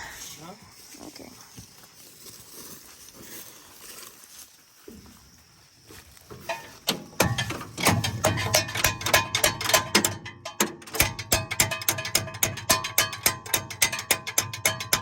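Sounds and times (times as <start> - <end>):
music with drums and percussion: 8.0 - 15.0.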